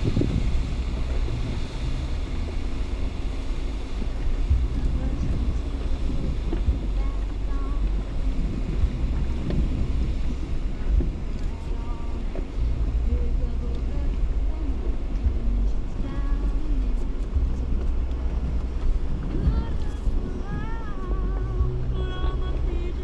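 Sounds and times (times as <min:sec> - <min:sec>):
engine and tyres on rock: 0:00.0 - 0:23.0
wind on microphone: 0:00.0 - 0:23.0
rocks knocking underneath: 0:04.0 - 0:13.0.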